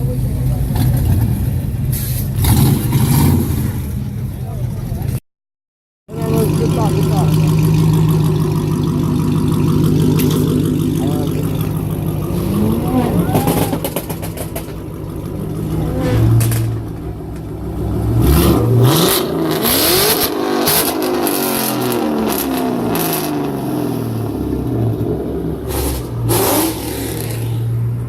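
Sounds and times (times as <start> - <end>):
car engine revving: 0.0 - 5.0, 6.1 - 28.0
exhaust crackles: 6.1 - 28.0.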